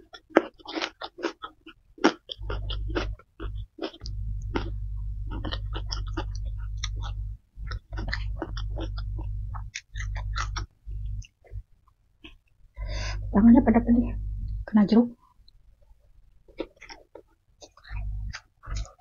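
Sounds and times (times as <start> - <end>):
wet chewing mouth clicks: 0.0 - 11.6, 16.5 - 19.0
steady low hum: 2.4 - 16.9, 17.5 - 19.0.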